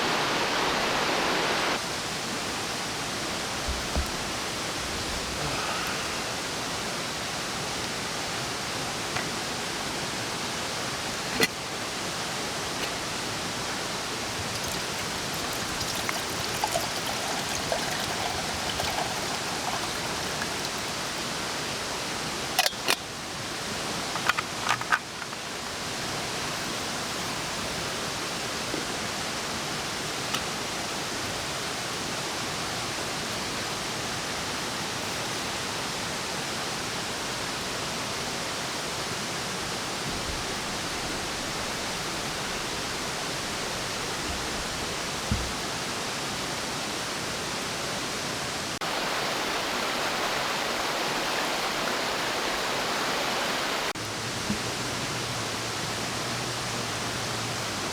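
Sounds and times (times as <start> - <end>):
steady rushing noise: 0.0 - 1.8.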